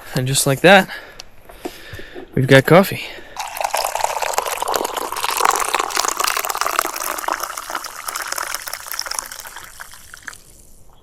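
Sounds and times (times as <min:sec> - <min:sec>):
coffee pouring into a cup: 0:03.4 - 0:10.8.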